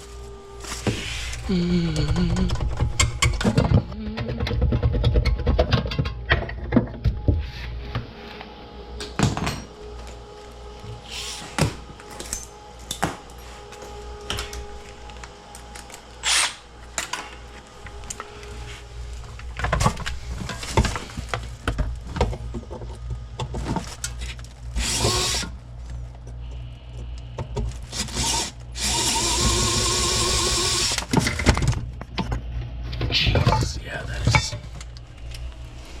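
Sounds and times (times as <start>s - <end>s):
cordless drill running: 16.2s - 16.7s, 24.8s - 25.5s, 27.9s - 31.1s.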